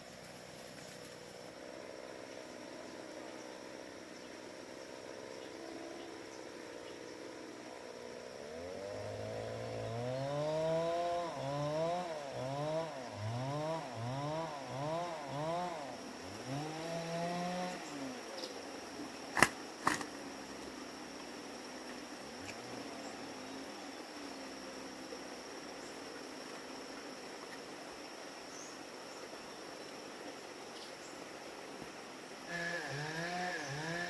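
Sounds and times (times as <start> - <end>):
small engine revving: 8.3 - 18.7, 19.3 - 20.2, 21.9 - 25.0, 32.4 - 34.0.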